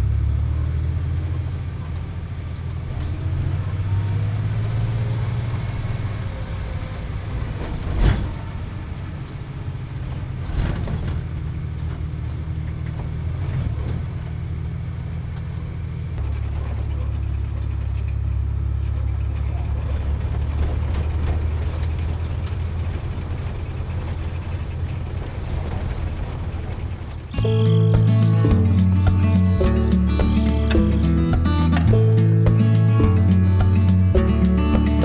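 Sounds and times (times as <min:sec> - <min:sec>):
vehicle driving rumble: 0:16.2 - 0:35.0.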